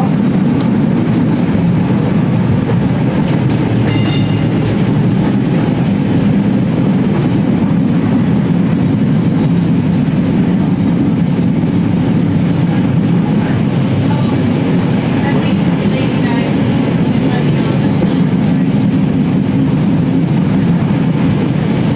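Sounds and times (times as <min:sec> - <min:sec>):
tram rumbling on track: 0:00.0 - 0:21.9
high-pitched tone: 0:03.5 - 0:06.0.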